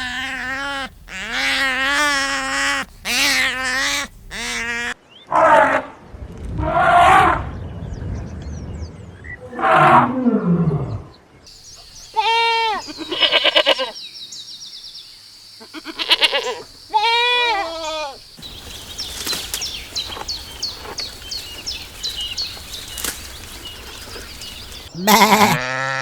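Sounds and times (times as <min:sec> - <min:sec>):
goat bleating: 0:00.0 - 0:05.0, 0:12.2 - 0:14.0, 0:15.7 - 0:18.2, 0:25.0 - 0:26.0.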